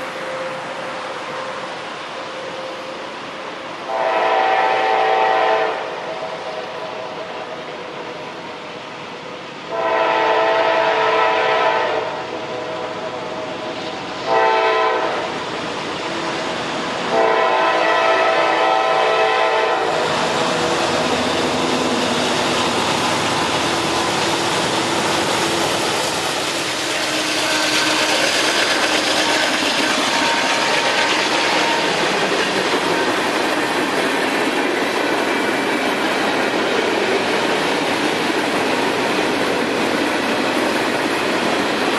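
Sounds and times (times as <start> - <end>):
train rumbling on rails: 0.0 - 41.9
train air horn blasts: 3.8 - 6.8, 9.7 - 13.0, 14.2 - 15.4, 17.1 - 22.0, 26.7 - 32.2.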